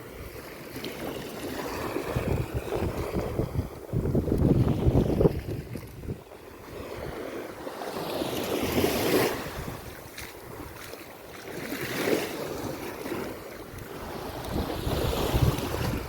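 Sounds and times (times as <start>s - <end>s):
sea waves breaking on beach: 0.0s - 16.0s
wind buffeting microphone: 1.3s - 7.6s, 8.6s - 11.0s, 12.4s - 16.0s.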